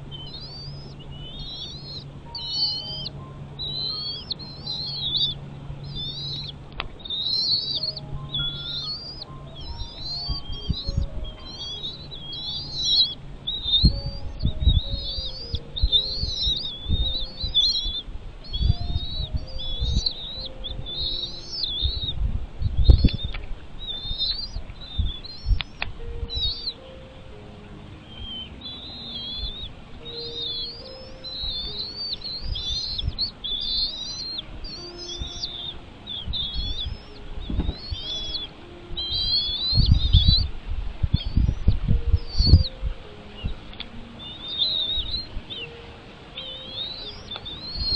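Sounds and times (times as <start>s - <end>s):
bird chirping: 0.0s - 47.9s.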